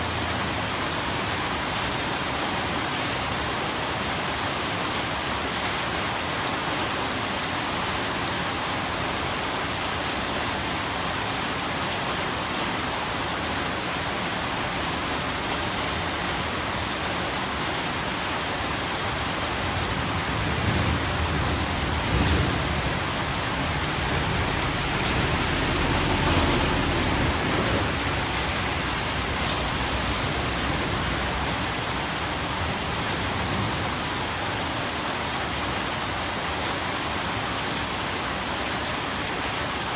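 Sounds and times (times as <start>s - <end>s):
rain falling: 0.0s - 39.9s
low rumble: 19.7s - 32.4s.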